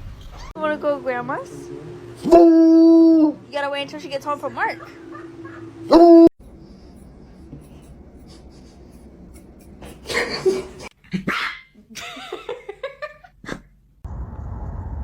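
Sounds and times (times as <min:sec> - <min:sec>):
steady low rumble: 0:00.0 - 0:10.9
dog wavering calls: 0:02.2 - 0:03.5, 0:04.2 - 0:06.3
dog barking: 0:04.7 - 0:06.3, 0:11.2 - 0:11.7.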